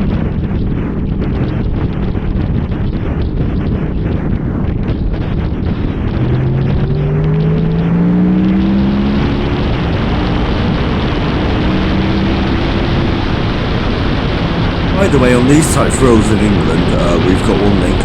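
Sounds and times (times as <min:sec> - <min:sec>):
wind on microphone: 0:00.0 - 0:07.8
motorcycle engine accelerating: 0:04.7 - 0:13.4.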